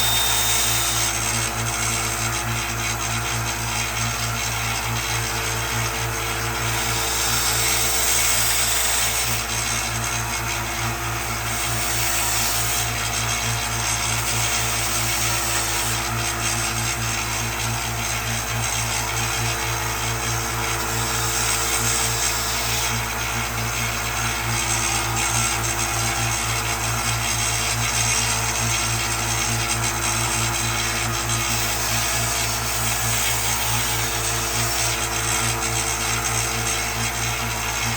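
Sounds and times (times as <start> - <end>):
grinding hiss: 0.0 - 1.5
power tool motor running: 0.0 - 37.9.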